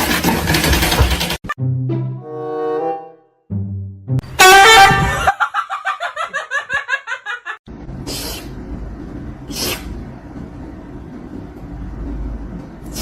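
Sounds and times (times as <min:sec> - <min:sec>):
person laughing: 0:05.0 - 0:07.6
short breathy hisses: 0:08.1 - 0:08.6, 0:09.5 - 0:09.9.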